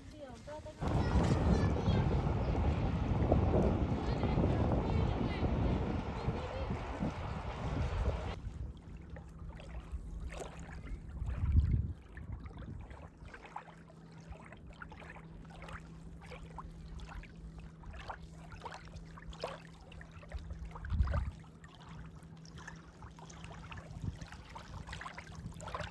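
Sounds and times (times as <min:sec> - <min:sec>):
running water of a stream: 0:00.0 - 0:25.9
low rumbles: 0:00.8 - 0:08.4.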